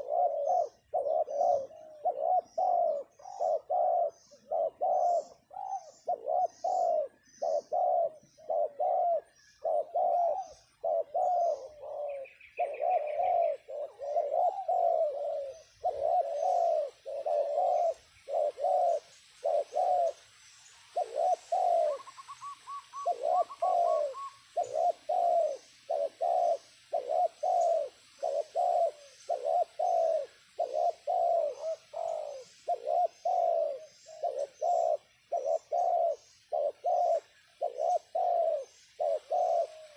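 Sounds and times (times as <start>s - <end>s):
doves cooing: 0.0s - 39.9s
small bird chirping faintly: 0.0s - 39.9s.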